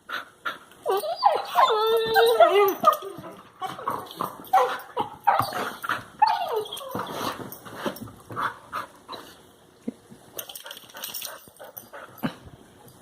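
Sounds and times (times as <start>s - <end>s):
puppies whining and grumbling: 0.8s - 7.6s.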